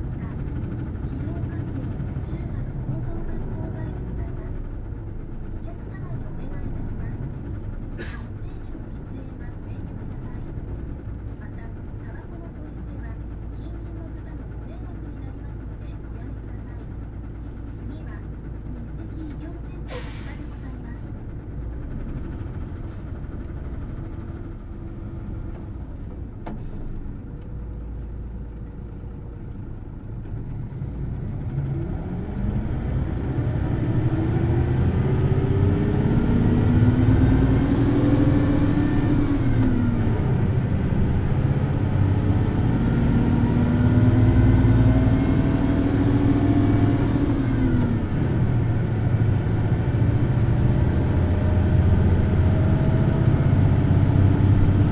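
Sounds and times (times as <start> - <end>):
bus engine revving: 21.8 - 54.9.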